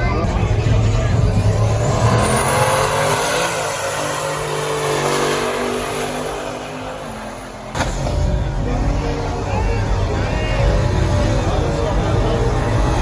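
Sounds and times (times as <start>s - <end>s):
car engine revving hard: 0.4s - 13.0s.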